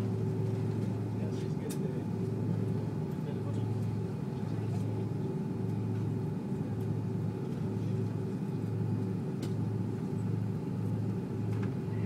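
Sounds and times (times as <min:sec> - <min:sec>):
aircraft cabin drone: 0:00.0 - 0:12.0
faint whining engine tones: 0:00.0 - 0:12.0.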